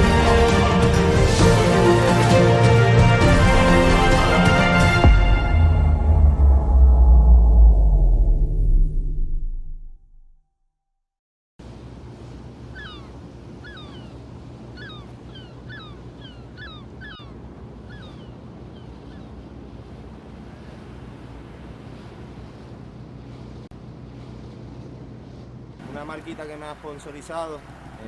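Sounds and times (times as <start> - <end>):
water noise: 0.0 - 9.5, 11.6 - 28.0
boat engine running: 11.6 - 28.0
wind: 11.6 - 28.0
bird calling: 12.7 - 19.5.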